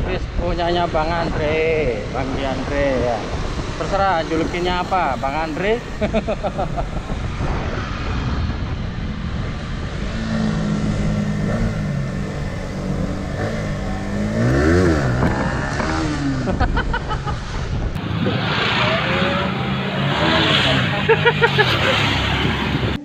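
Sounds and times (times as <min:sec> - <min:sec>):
motorcycles passing by: 0:00.0 - 0:23.0
wind and road noise: 0:00.0 - 0:23.0
motorcycle engine running: 0:01.4 - 0:17.1.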